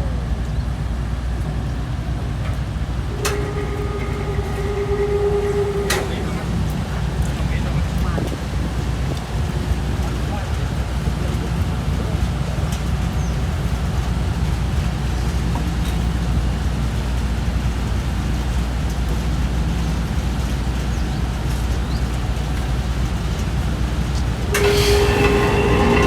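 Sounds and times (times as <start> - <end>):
road and wind noise: 6.9 - 24.6.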